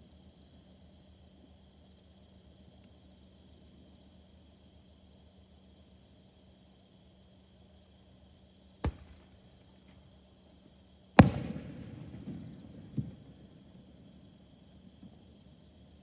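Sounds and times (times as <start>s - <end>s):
insects chirring: 7.8s - 16.0s
fireworks bangs and crackle: 8.9s - 10.0s, 11.2s - 15.4s.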